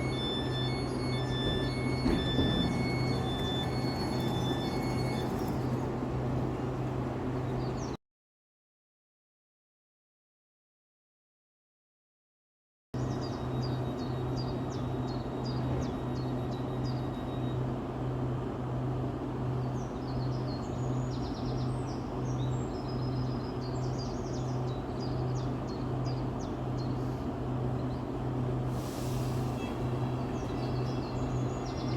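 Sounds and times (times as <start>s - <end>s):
electric train hum: 0.0s - 8.0s, 13.0s - 31.9s
birds chirping: 29.6s - 31.9s.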